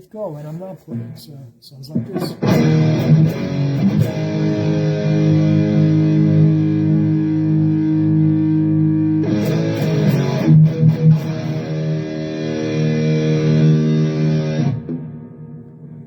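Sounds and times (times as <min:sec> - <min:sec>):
muted guitar hits: 0:02.0 - 0:04.4
distorted electric guitar chords: 0:02.0 - 0:16.0.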